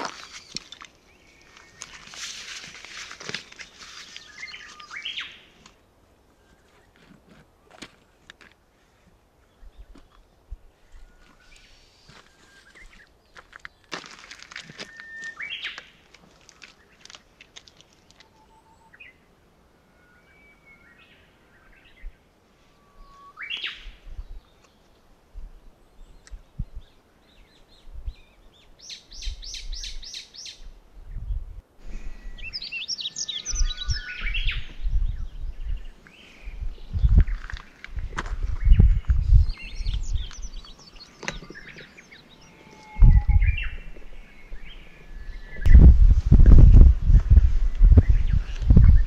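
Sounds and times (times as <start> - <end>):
wild birds calling and singing: 3.2 - 7.1, 9.4 - 13.9, 14.5 - 25.1, 31.8 - 45.9.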